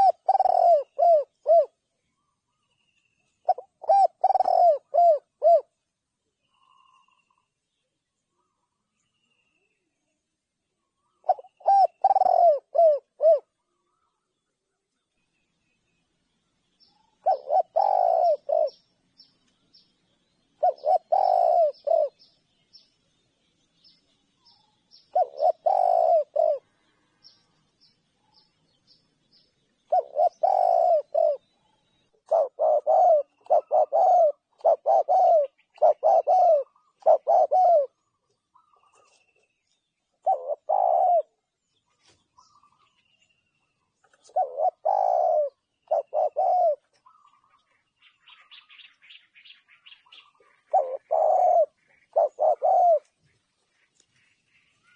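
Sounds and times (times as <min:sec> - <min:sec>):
dove cooing: 0:00.0 - 0:01.8, 0:03.4 - 0:05.7, 0:11.1 - 0:13.6, 0:17.0 - 0:18.9, 0:20.5 - 0:22.4, 0:25.0 - 0:27.4, 0:29.8 - 0:31.6, 0:32.2 - 0:39.2, 0:40.2 - 0:41.5, 0:44.0 - 0:47.6, 0:49.7 - 0:53.2
small bird high chirps: 0:41.8 - 0:54.9.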